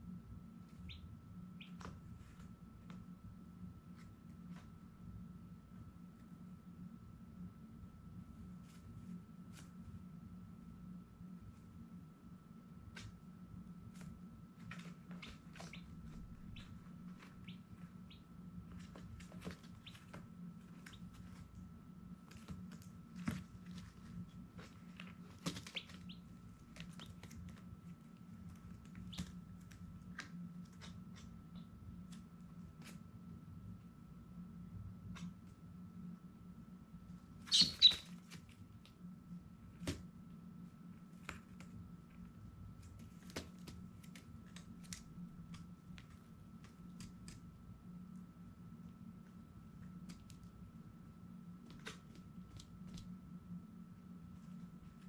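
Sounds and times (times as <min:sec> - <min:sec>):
low steady hum: 0:00.0 - 0:55.0
baby chicks peeping: 0:00.7 - 0:02.4, 0:14.7 - 0:21.4, 0:25.3 - 0:27.4, 0:37.4 - 0:38.4.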